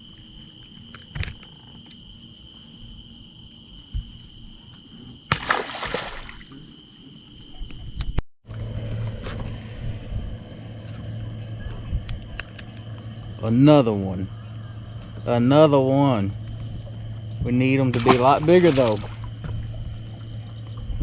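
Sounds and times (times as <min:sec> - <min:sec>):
night insects chorus: 0:00.0 - 0:08.2, 0:09.0 - 0:21.0
low steady hum: 0:00.0 - 0:21.0
water splash: 0:05.3 - 0:06.6, 0:17.9 - 0:19.4.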